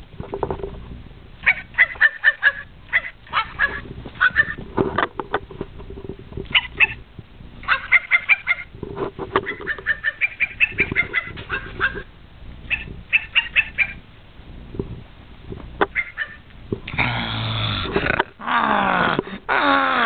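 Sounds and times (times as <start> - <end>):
ferrets dooking: 1.4 - 4.7, 6.5 - 7.0, 7.6 - 14.0, 15.8 - 20.0.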